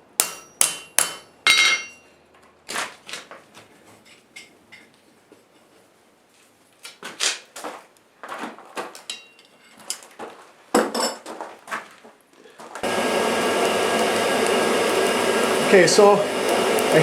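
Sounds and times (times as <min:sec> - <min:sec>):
metal tools clinking and scraping: 0:01.4 - 0:02.1, 0:09.0 - 0:10.1
motor-driven blower humming: 0:12.8 - 0:17.0.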